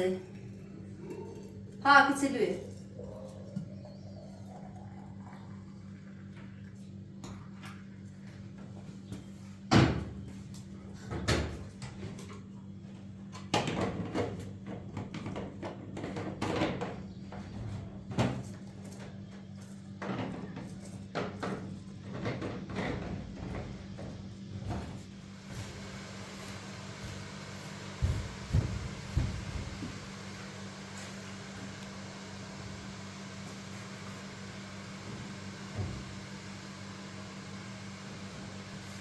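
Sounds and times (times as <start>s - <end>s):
steady low hum: 0.0s - 9.0s, 23.0s - 39.0s.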